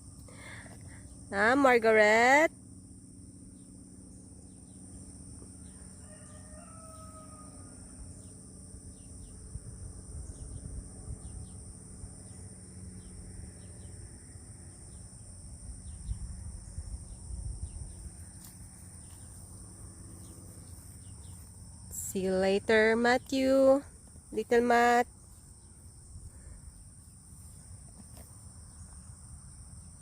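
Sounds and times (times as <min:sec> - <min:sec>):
insects chirring: 0:00.0 - 0:30.0
rooster crowing: 0:05.6 - 0:08.2.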